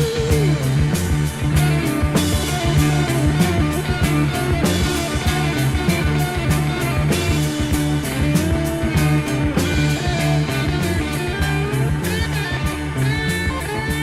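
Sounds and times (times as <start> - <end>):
band playing rock chords: 0.0 - 14.0
steady drum beat: 0.0 - 14.0.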